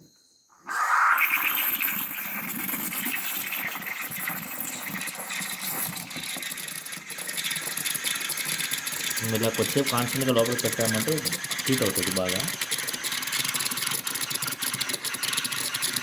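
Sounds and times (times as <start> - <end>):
espresso machine steam wand hissing: 0.7 - 16.0.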